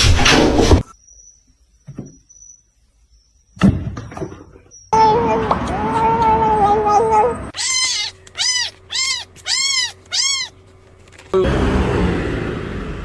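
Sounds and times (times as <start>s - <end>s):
cat meowing: 6.6s - 10.6s
loud noisy sound: 11.4s - 13.0s.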